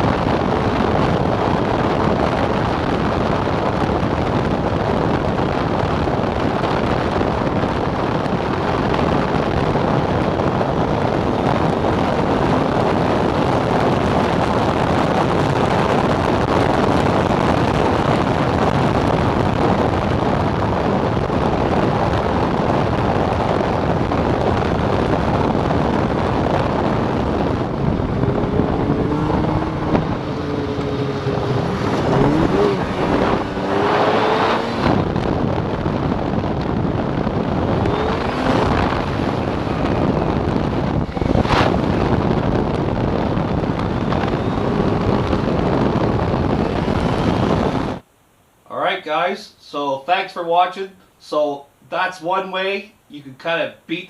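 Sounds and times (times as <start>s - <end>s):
wind rushing over microphone: 0.0s - 48.1s
snowmobile engine running: 26.6s - 48.0s.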